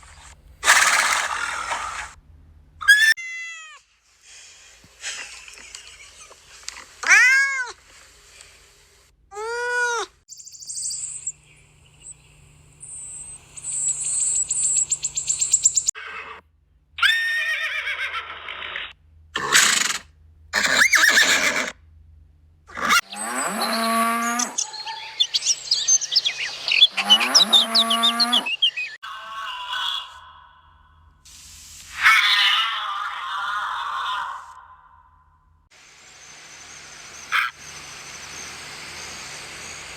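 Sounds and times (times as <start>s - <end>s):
high noisy animal calls: 0.6s - 2.2s, 17.0s - 21.8s, 22.7s - 31.1s, 31.9s - 35.2s, 35.8s - 39.9s
animal cries rising and falling: 2.8s - 3.9s, 7.0s - 7.8s, 9.3s - 10.1s, 17.0s - 20.0s, 20.6s - 21.8s, 22.7s - 25.4s, 26.7s - 30.5s, 31.9s - 34.7s, 37.3s - 37.7s
low drawn-out animal calls: 22.7s - 31.2s, 32.0s - 35.4s.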